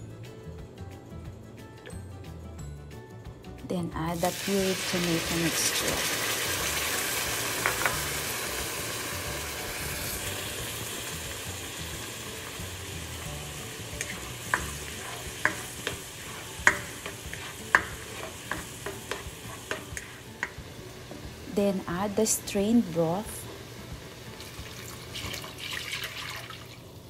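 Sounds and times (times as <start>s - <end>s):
sauce sizzling in hot oil: 4.0s - 27.0s
spoon stirring with clicks: 14.0s - 20.6s.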